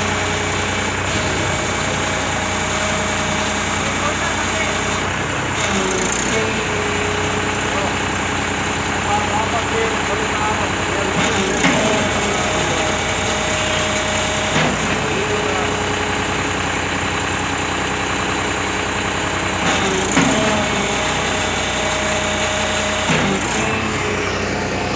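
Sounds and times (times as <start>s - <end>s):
tractor diesel engine running: 0.0s - 24.9s
short knocks: 11.1s - 15.9s, 19.6s - 23.8s.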